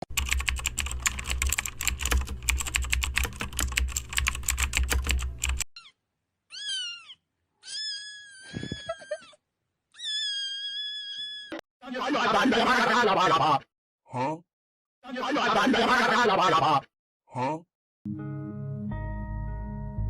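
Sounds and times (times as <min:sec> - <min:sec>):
rapid keyboard typing: 0:00.0 - 0:05.6
cat meowing: 0:05.8 - 0:09.3.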